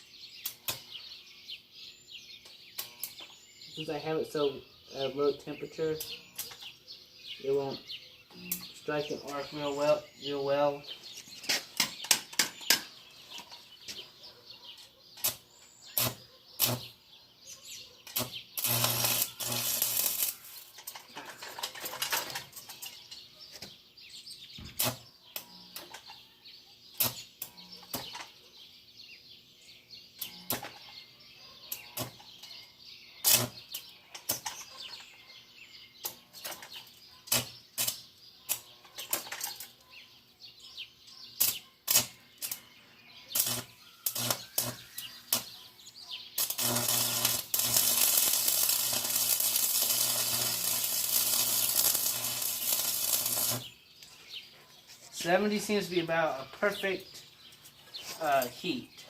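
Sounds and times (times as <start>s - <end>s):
welding arc crackling: 15.2s - 16.9s, 18.1s - 20.7s, 33.2s - 33.6s, 41.4s - 42.6s, 43.4s - 45.5s, 46.4s - 53.7s.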